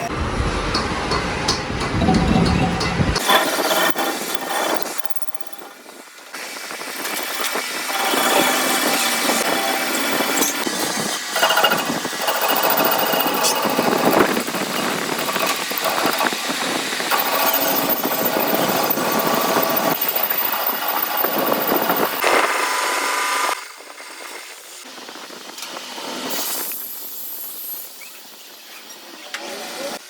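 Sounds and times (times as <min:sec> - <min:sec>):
quiet workshop noise: 0:00.0 - 0:30.0
power tool whining: 0:06.9 - 0:23.6.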